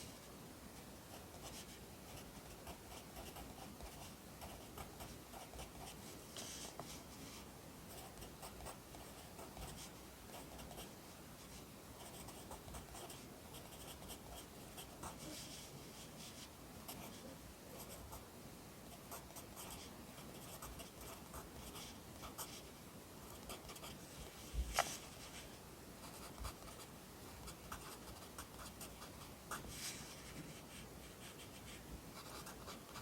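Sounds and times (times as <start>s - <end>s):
pencil scratching on paper: 1.1s - 6.9s, 12.0s - 18.2s, 19.1s - 22.6s, 23.3s - 24.0s, 30.5s - 33.0s.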